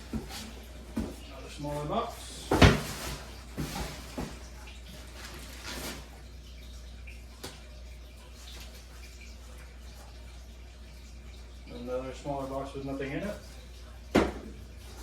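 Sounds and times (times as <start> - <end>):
cardboard rustling and scraping: 0.0 - 1.3, 2.4 - 6.1.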